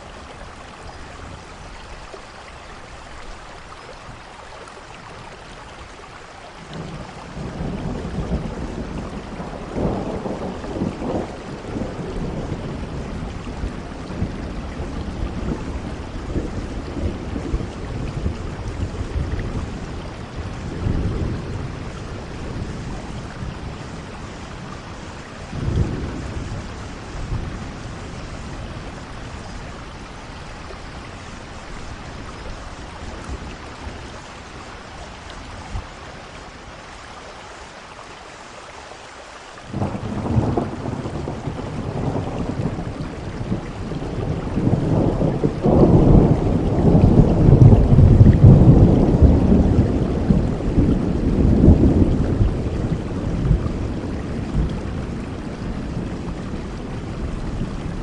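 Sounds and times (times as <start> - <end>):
steady rain: 0.0 - 58.0
rolling thunder: 6.7 - 34.2, 39.7 - 58.0.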